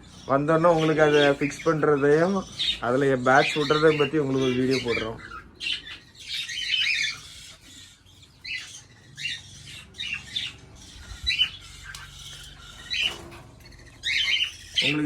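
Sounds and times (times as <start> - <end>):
parrots squawking: 0.0 - 15.0.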